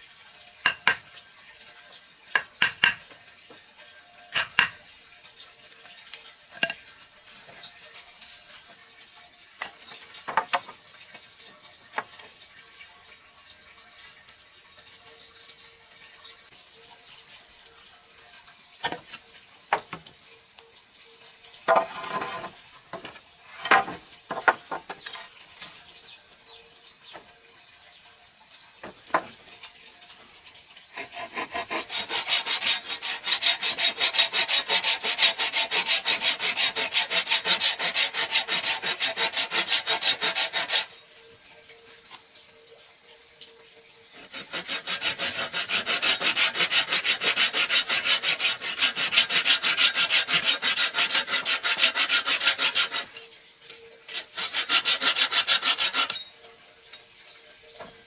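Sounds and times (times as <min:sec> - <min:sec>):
wood knocks: 0:10.3 - 0:10.8, 0:22.9 - 0:25.1, 0:28.8 - 0:29.4
hand tool working wood: 0:21.7 - 0:25.3, 0:30.9 - 0:40.9, 0:44.2 - 0:53.2, 0:54.1 - 0:56.3.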